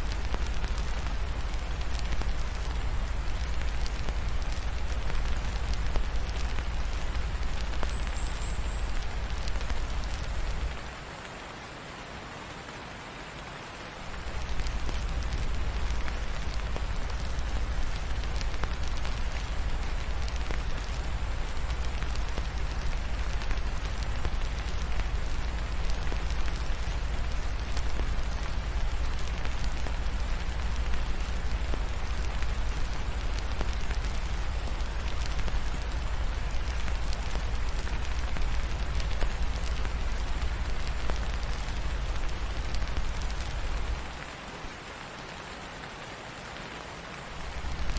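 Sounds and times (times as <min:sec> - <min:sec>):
fireplace crackling: 0:00.0 - 0:11.1, 0:14.1 - 0:44.4, 0:47.3 - 0:47.9
steady rain: 0:00.0 - 0:47.9.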